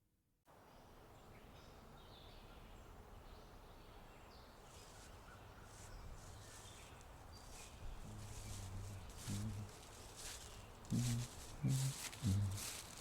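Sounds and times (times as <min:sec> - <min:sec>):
low background hiss: 0:00.5 - 0:13.0.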